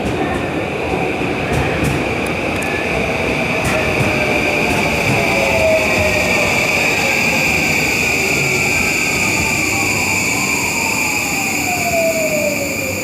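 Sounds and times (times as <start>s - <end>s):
rail rumble: 0.0s - 13.0s
high-pitched train squeal: 3.6s - 13.0s
train motor whine: 3.6s - 13.0s.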